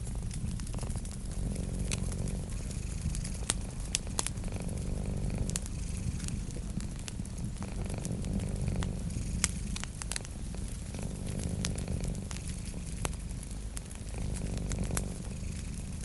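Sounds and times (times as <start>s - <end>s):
cat purring: 0.0s - 16.0s
wood fire crackling: 0.0s - 16.0s.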